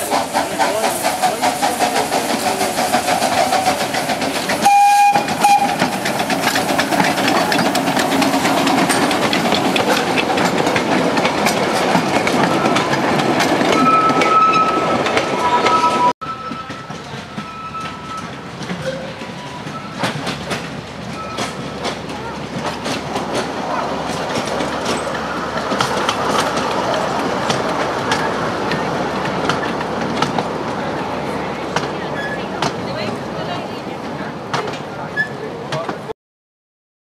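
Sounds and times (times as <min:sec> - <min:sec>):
steam train rattling past: 0:00.0 - 0:36.1
train whistle toot: 0:04.6 - 0:05.8.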